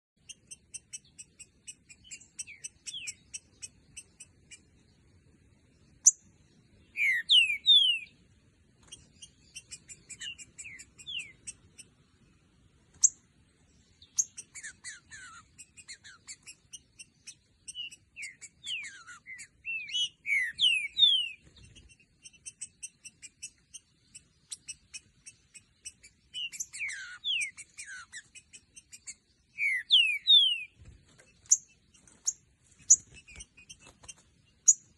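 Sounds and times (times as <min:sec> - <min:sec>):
bird singing whistled phrases: 0:01.0 - 0:03.4, 0:06.9 - 0:08.2, 0:09.2 - 0:11.6, 0:14.0 - 0:23.8, 0:24.5 - 0:30.8.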